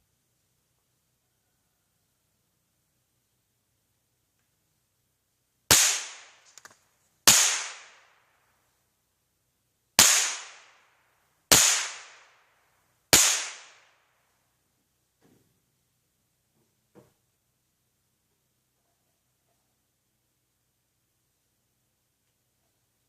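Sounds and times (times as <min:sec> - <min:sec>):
rifle shots: 0:05.7 - 0:06.5, 0:07.2 - 0:08.2, 0:10.0 - 0:10.8, 0:11.5 - 0:12.4, 0:13.1 - 0:14.0.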